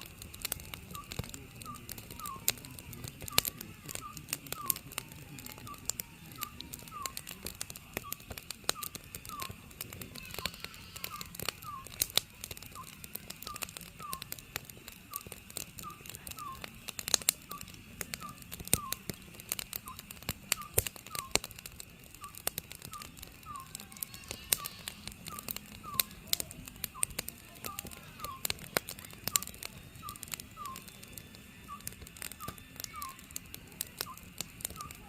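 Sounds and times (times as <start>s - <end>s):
wood fire crackling: 0.0s - 35.0s
owl calling: 1.0s - 2.6s, 3.2s - 4.8s, 5.4s - 7.3s, 7.9s - 12.1s, 12.7s - 14.3s, 15.1s - 16.7s, 17.5s - 19.2s, 19.9s - 21.4s, 22.2s - 26.2s, 27.0s - 28.6s, 29.3s - 30.9s, 31.6s - 33.3s.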